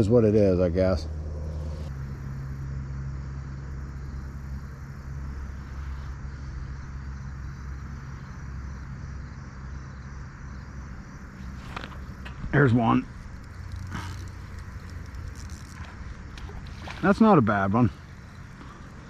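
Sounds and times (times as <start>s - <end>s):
low motor hum: 0.0s - 19.0s
flowing river water: 11.4s - 19.0s.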